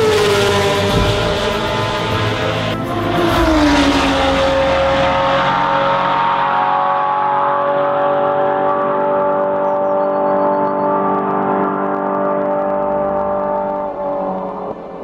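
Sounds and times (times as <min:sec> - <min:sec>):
race car engine passing: 0:00.0 - 0:09.6.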